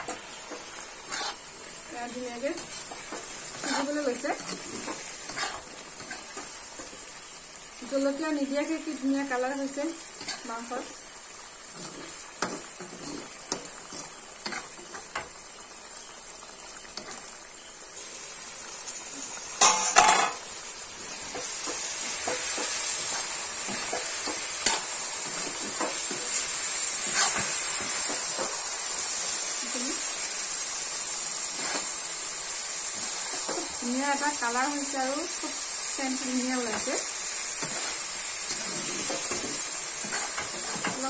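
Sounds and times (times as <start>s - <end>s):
metal spoon scraping a pan: 0.0s - 7.0s, 10.1s - 10.7s, 11.7s - 15.0s, 19.6s - 20.4s, 21.1s - 28.5s, 31.5s - 32.0s, 36.6s - 41.0s
chicken sizzling in a pan: 0.0s - 41.0s.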